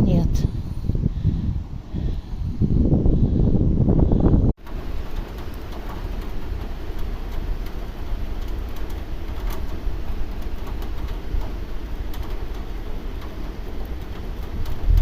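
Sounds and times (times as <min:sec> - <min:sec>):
low rumble: 0:00.0 - 0:15.0
raindrop ticks: 0:04.6 - 0:15.0
steady rain falling: 0:04.6 - 0:15.0.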